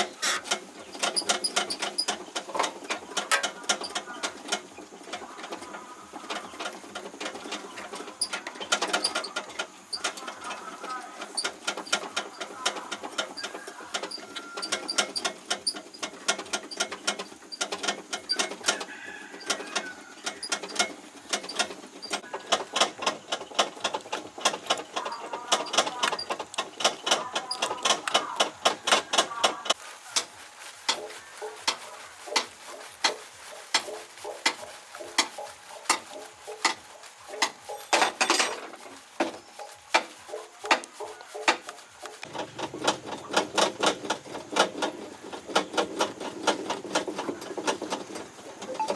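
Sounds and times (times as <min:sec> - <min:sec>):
short scraping: 0:00.0 - 0:03.5
mechanical clicking and tapping: 0:06.3 - 0:29.8.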